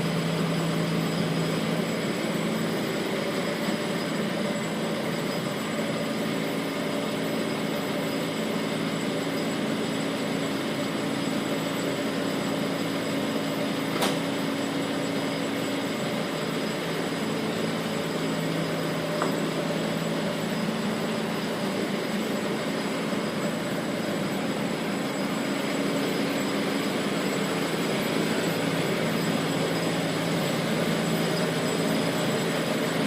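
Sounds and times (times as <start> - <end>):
diesel engine running: 0.0 - 33.0
sharp click: 14.0 - 14.2.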